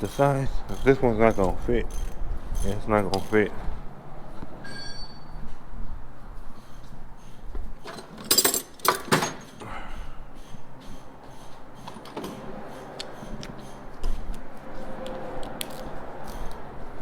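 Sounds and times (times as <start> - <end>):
metal hand tools clinking: 0.0 - 3.5, 7.9 - 9.5.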